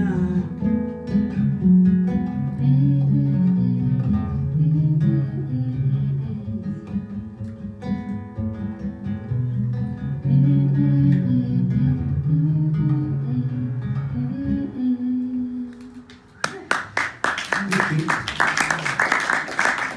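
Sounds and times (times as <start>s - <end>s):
guitar picking notes and chords: 0.0s - 15.8s.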